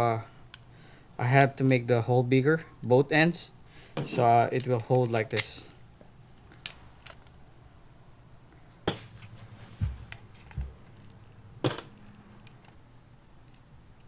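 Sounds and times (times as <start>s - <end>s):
dull thumps: 9.8s - 10.9s.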